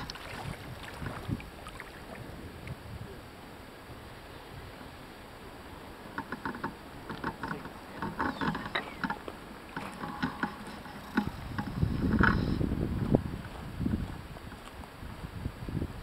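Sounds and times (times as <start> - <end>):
outdoor background noise: 0.0 - 16.0
short clicks and knocks: 6.2 - 12.6.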